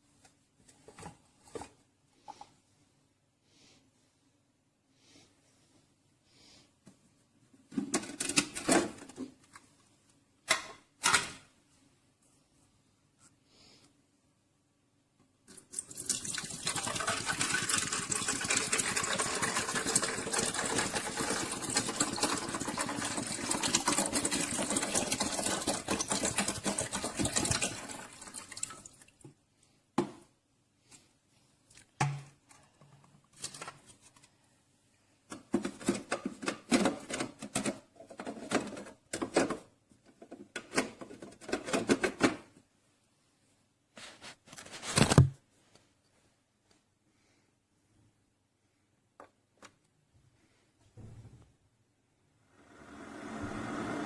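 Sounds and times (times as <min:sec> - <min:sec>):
liquid streaming into a cup: 0:15.6 - 0:29.0
coffee maker sputtering and gurgling: 0:16.0 - 0:28.2, 0:52.5 - 0:54.0
coffee maker pump buzzing: 0:52.7 - 0:54.0.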